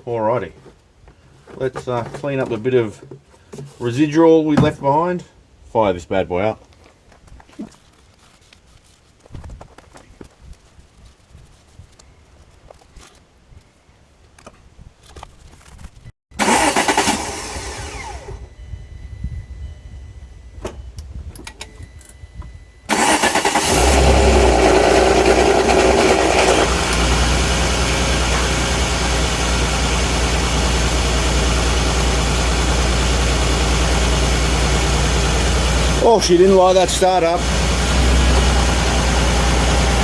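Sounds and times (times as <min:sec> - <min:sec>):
engine cranking and idling: 0:16.4 - 0:18.5, 0:22.9 - 0:40.0.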